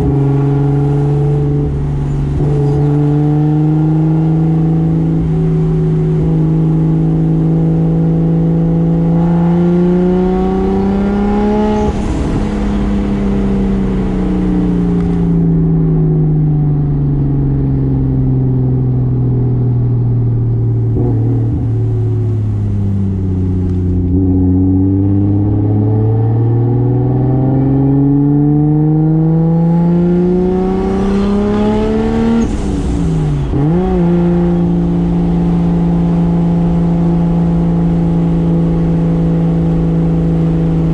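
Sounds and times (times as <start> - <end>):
car engine revving: 0.0 - 40.9
intake hiss and wind: 10.0 - 15.8, 30.3 - 40.9.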